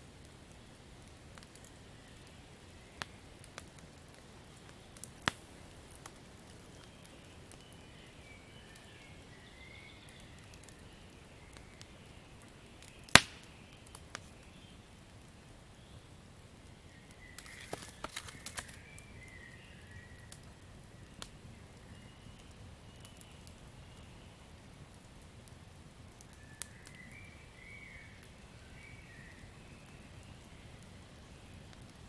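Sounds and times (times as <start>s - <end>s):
campfire crackling: 0.0s - 32.0s.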